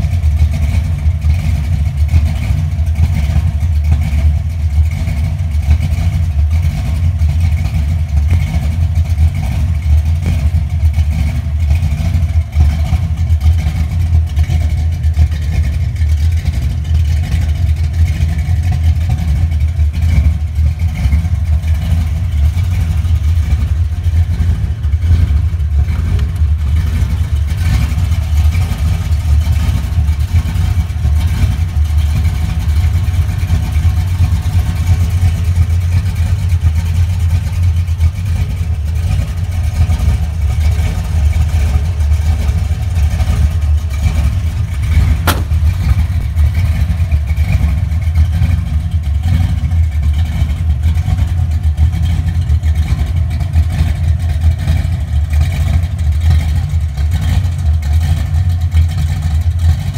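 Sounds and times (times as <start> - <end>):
car engine idling: 0.0 - 59.9
click: 45.2 - 45.7.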